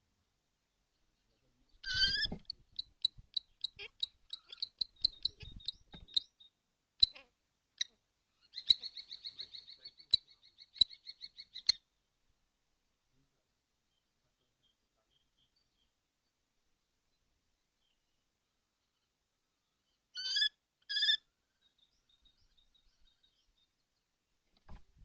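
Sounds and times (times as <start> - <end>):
kestrel calling: 1.8 - 7.2, 7.8 - 11.8, 20.2 - 21.2.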